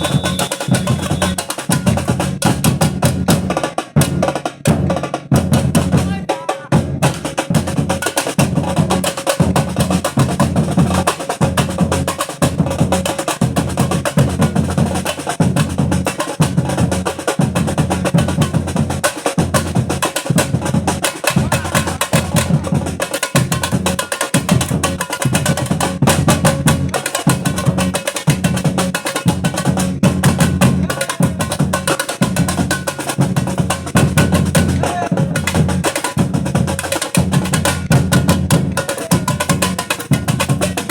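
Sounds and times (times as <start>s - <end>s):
snare and high drum strokes: 0.0s - 40.9s.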